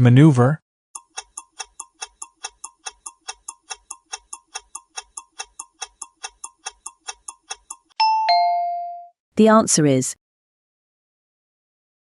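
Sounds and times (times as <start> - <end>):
clock ticking: 1.0 - 8.0.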